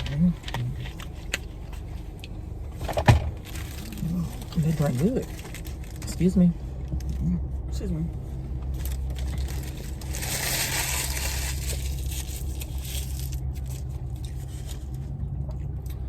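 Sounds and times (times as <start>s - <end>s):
steady low hum: 0.0s - 16.0s
paper packaging crinkling: 3.4s - 6.2s, 8.7s - 15.0s.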